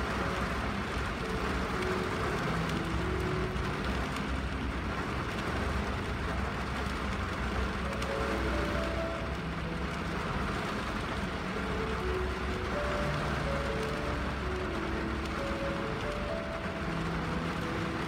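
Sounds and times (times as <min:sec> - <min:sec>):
soft melody notes: 0:00.0 - 0:06.4, 0:07.1 - 0:18.0
rain on a car windshield: 0:00.0 - 0:18.0.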